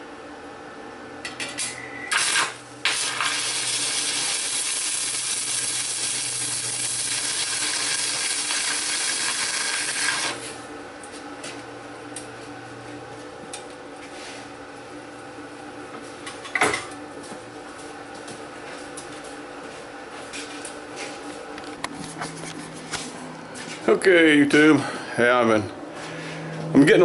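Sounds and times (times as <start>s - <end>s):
welding arc crackling: 2.1s - 10.6s.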